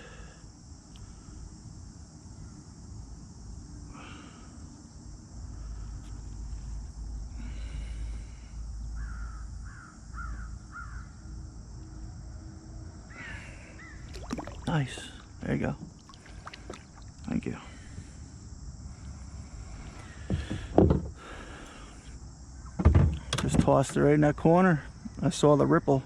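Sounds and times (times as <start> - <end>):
bird harsh calls: 13.1 - 14.2
steady high hiss: 13.1 - 22.4.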